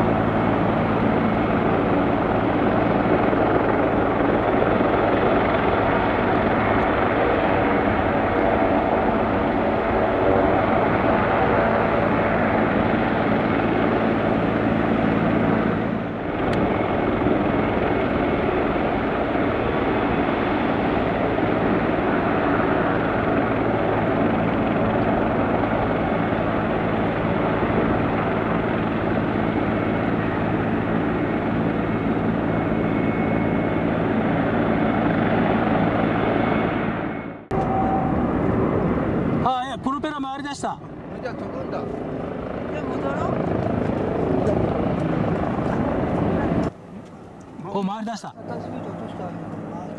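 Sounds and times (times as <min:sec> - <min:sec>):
turboprop engine running: 0:00.0 - 0:49.9.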